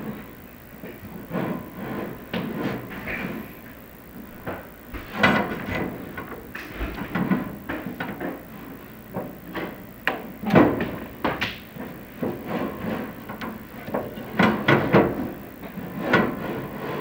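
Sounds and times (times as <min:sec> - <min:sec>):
hard objects knocking and scraping: 0:04.3 - 0:07.6.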